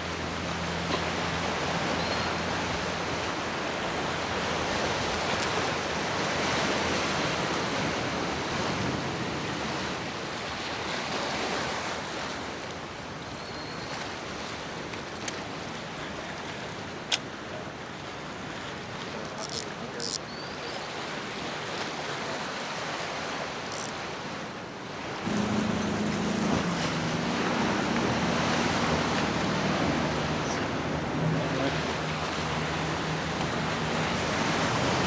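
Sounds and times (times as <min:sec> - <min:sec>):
ocean surf: 0:00.0 - 0:35.0
wind: 0:00.0 - 0:35.0.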